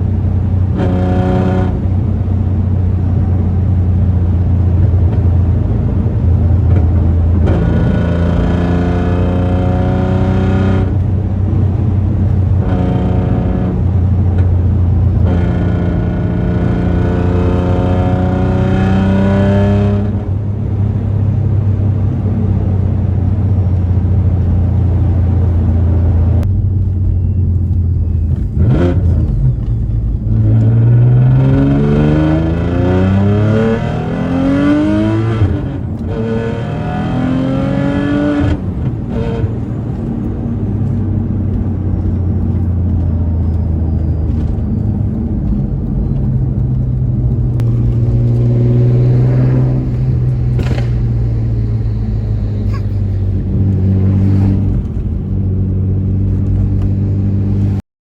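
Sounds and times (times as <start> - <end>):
car engine accelerating: 0.0 - 57.8
exhaust pops: 44.2 - 52.0.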